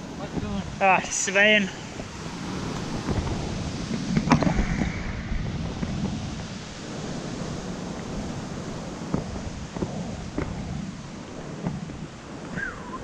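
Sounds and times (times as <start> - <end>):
river rapids rushing: 0.0 - 5.4
wind on microphone: 0.0 - 13.0.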